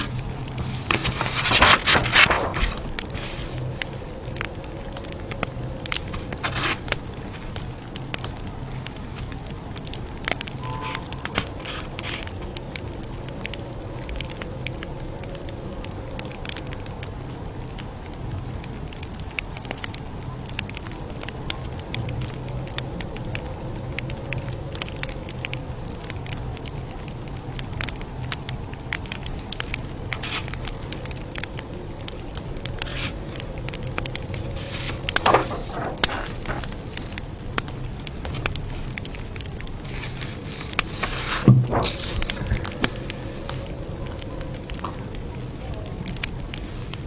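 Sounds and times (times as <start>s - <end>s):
low rumble of burning wood: 0.0s - 10.6s, 11.2s - 47.0s.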